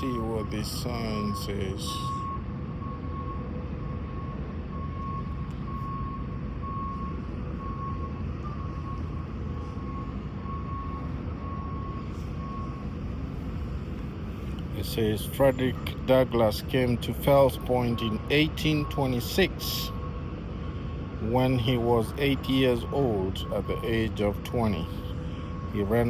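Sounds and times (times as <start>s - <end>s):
faint high beep: 0.0s - 13.0s, 21.6s - 26.0s
urban background rumble: 0.0s - 26.0s.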